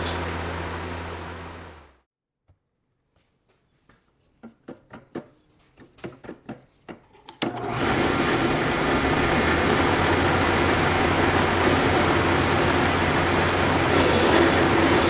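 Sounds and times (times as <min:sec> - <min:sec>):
electric power tool running: 0:07.5 - 0:15.0.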